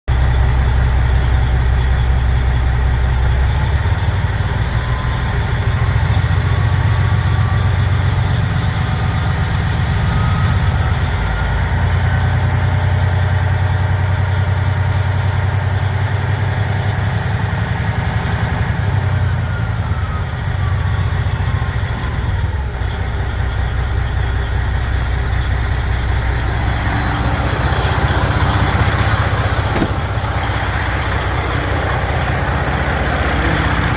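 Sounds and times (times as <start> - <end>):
diesel engine running: 0.1 - 33.9
high whine: 24.2 - 33.9.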